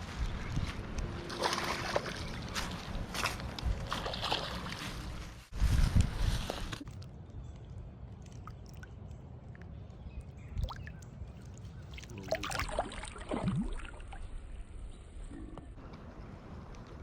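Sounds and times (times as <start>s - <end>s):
water splashing: 1.3s - 2.8s, 3.8s - 5.2s, 10.5s - 14.3s.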